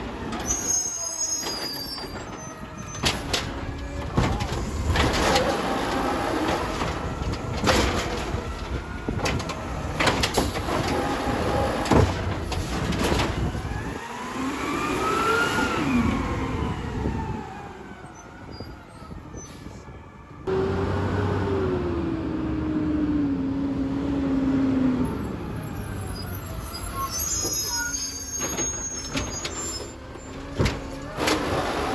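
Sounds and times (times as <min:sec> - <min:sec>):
metal clanks and bangs: 0:01.4 - 0:13.6.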